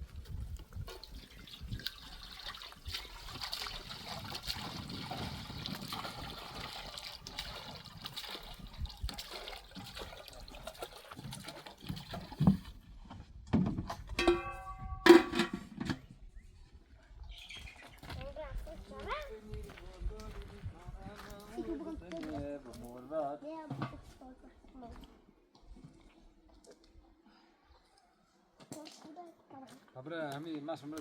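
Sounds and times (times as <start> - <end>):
water pouring and splashing: 0.0 - 12.9.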